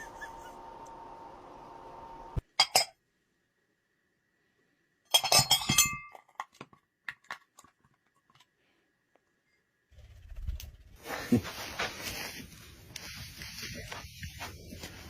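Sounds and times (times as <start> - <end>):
glass clattering with ringing tones: 5.1 - 6.2
glass clinking: 5.1 - 6.2.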